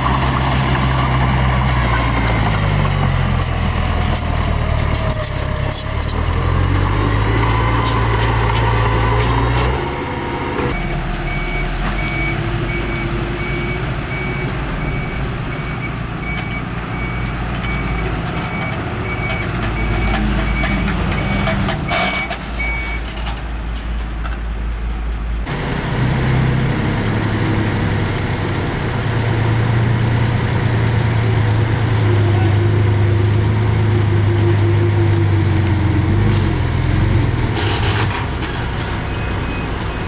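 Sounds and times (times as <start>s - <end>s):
diesel engine running: 0.0s - 40.0s
reversing alarm beeping: 10.7s - 23.1s.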